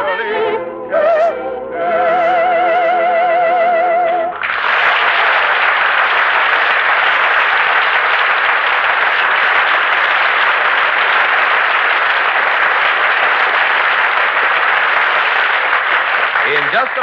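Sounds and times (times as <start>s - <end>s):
audience applauding: 4.3s - 17.0s.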